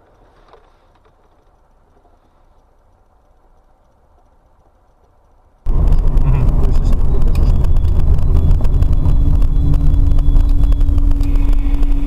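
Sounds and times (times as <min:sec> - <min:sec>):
vehicle engine and road noise: 0:00.0 - 0:12.0
steady hum: 0:02.6 - 0:12.0.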